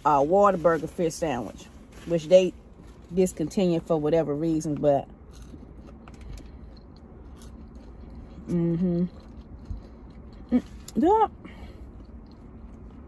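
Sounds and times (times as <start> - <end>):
person chewing: 5.3 - 13.0.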